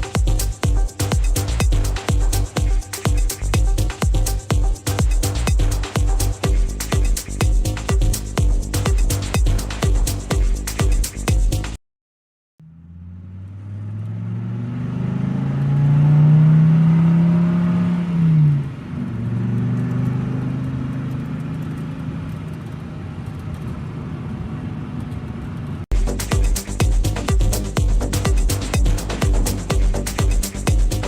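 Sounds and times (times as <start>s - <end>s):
car engine starting and revving: 12.6s - 25.2s.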